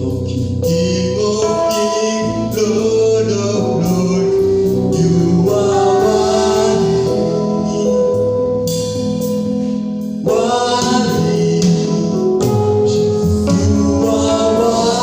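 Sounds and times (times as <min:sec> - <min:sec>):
sustained accompaniment: 0:00.0 - 0:15.0
choir singing in harmony: 0:03.8 - 0:08.7, 0:10.2 - 0:12.4, 0:13.3 - 0:15.0.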